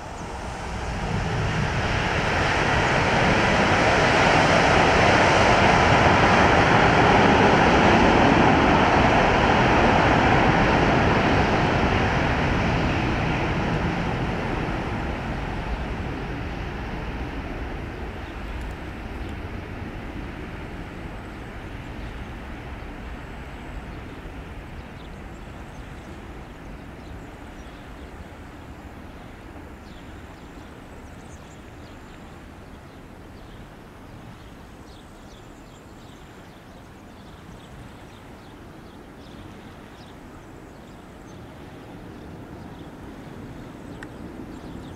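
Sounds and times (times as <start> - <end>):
jet engines rumbling: 0.0 - 44.9.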